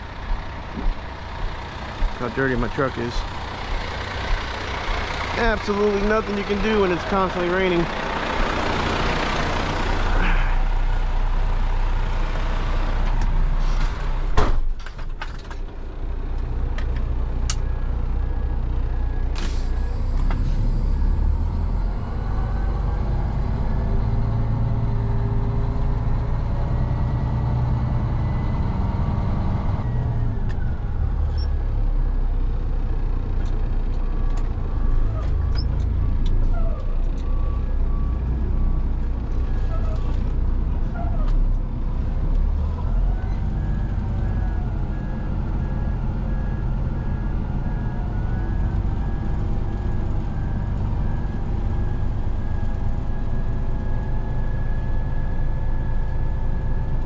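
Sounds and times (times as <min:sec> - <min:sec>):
truck engine rumbling: 0:00.0 - 0:57.0.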